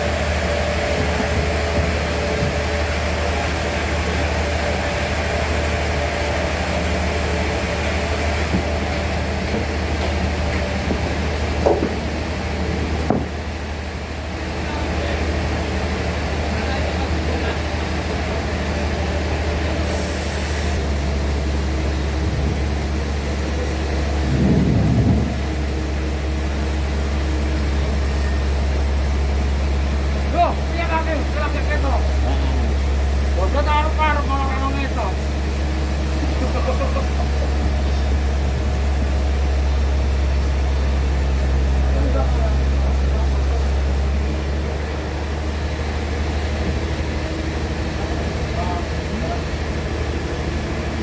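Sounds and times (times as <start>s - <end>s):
constant high whine: 0.0s - 51.0s
sawmill machinery humming: 0.0s - 51.0s
hiss: 19.7s - 44.2s
low rumble: 21.0s - 44.1s.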